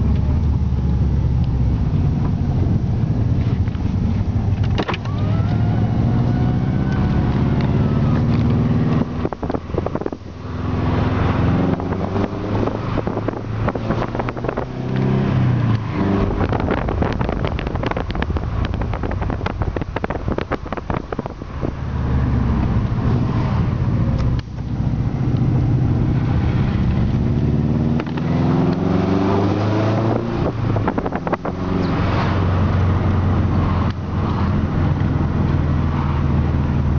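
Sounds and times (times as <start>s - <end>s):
car engine revving under load: 0.0s - 36.9s.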